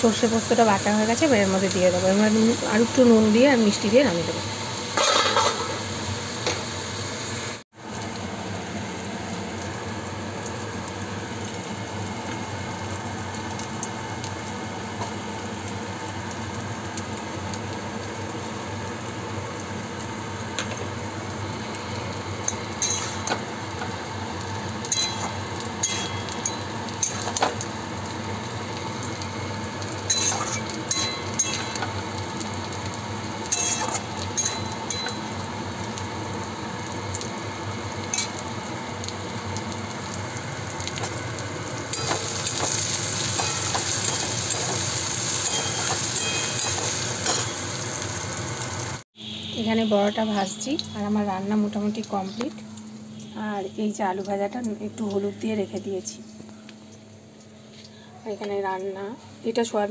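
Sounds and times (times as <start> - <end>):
vegetables sizzling in a wok: 0.0 - 59.9
metal spatula scraping a wok: 30.1 - 31.7, 33.5 - 34.0.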